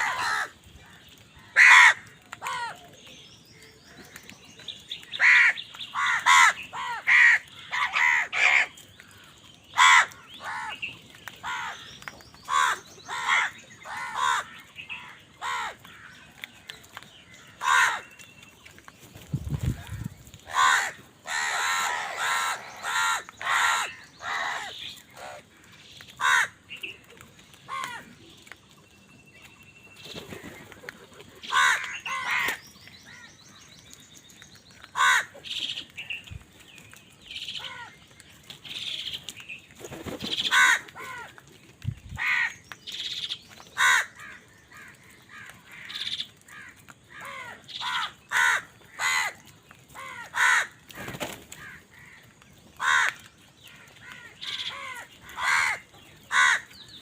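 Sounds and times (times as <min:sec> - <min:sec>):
crows cawing: 0:00.0 - 0:02.8, 0:05.1 - 0:10.8, 0:11.4 - 0:11.9, 0:12.5 - 0:16.3, 0:17.3 - 0:18.2, 0:19.7 - 0:26.6, 0:27.7 - 0:28.1, 0:31.4 - 0:33.4, 0:34.9 - 0:35.6, 0:37.6 - 0:38.0, 0:40.4 - 0:41.4, 0:42.2 - 0:42.6, 0:43.8 - 0:56.8.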